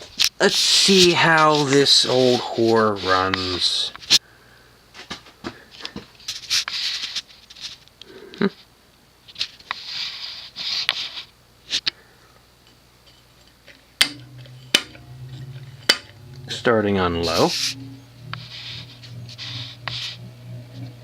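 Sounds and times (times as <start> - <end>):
ceiling fan motor humming: 11.4 - 21.0.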